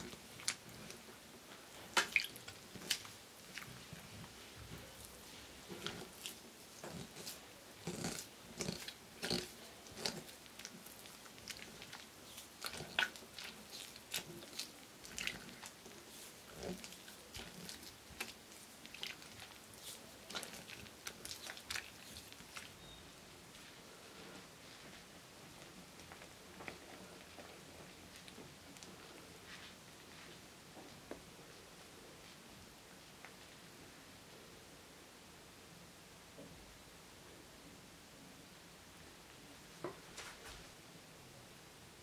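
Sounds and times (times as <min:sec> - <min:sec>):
spatula squelching batter in glass bowl: 0:00.0 - 0:23.0.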